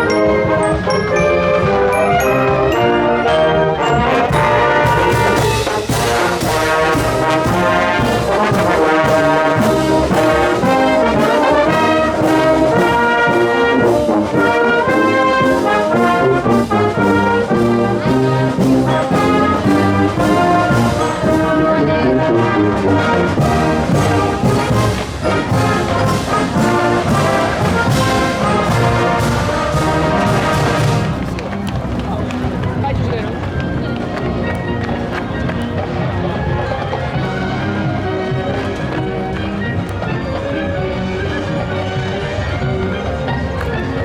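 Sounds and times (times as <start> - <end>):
trombones and trumpets playing chords: 0.0 - 31.5
steady drum beat: 4.1 - 33.2.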